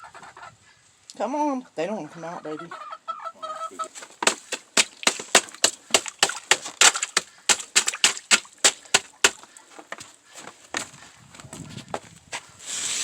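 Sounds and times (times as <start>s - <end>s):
ice crust crunching: 3.8s - 11.0s.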